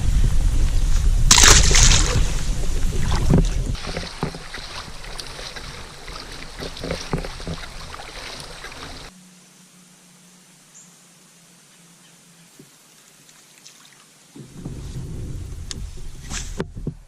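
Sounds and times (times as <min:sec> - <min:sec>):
wind buffeting microphone: 0:00.0 - 0:09.1, 0:14.4 - 0:17.0
water moving around kayak: 0:00.3 - 0:09.2, 0:13.2 - 0:17.0
knocks and splashes in boat: 0:01.3 - 0:09.1, 0:14.4 - 0:17.0.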